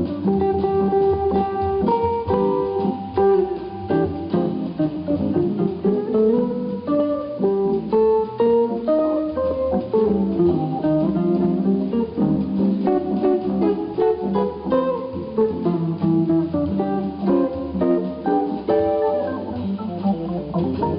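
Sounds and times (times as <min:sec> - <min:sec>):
jazz guitar solo: 0:00.0 - 0:20.9.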